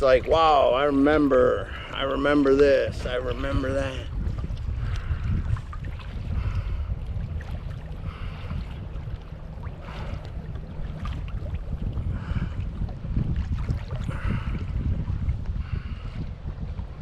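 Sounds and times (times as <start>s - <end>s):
wind on microphone: 0.0s - 17.0s
paddle splashing in water: 4.2s - 15.3s.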